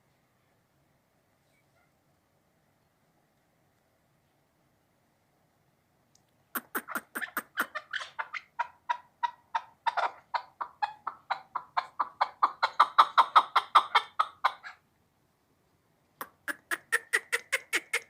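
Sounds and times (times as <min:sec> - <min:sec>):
partridge chuck calls: 0:06.6 - 0:14.8, 0:16.2 - 0:18.0.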